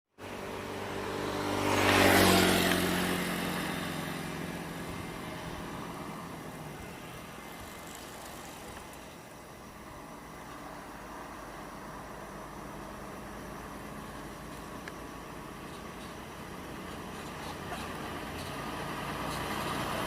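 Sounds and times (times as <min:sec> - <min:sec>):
heavy truck driving past: 0:15.1 - 0:20.0.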